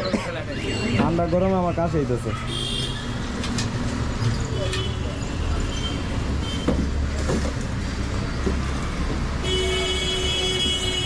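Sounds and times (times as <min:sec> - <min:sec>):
street traffic rumble: 0:00.0 - 0:11.0
vehicle horn: 0:09.4 - 0:11.0.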